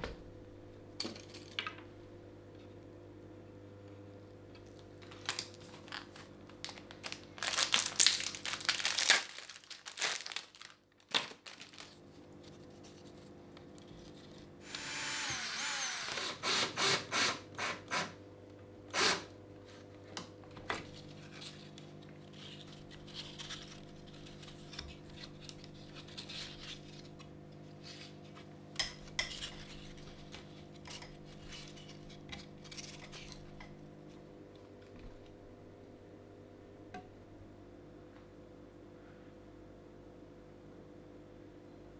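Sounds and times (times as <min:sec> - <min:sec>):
low steady hum: 0:00.0 - 0:17.6.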